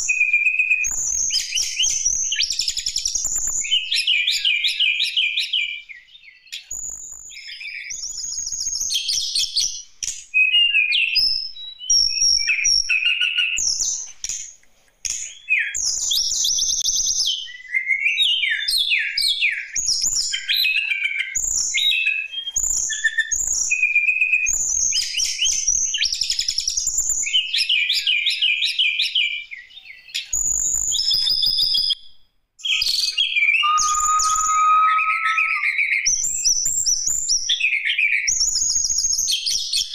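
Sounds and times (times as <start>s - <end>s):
songbird singing: 32.6s - 35.9s.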